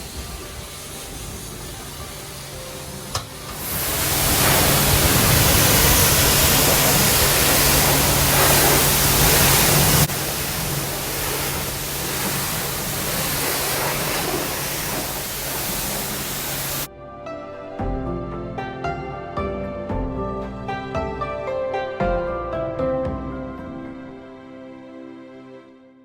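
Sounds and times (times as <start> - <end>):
high-pressure water spray hissing: 0.0 - 16.9
low pump hum: 0.0 - 16.9.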